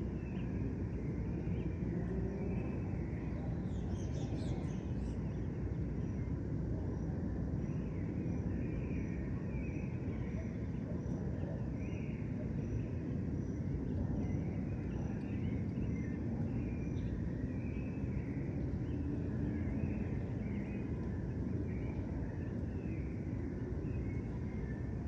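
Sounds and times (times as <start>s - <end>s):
birds chirping and twittering: 0.0s - 6.2s.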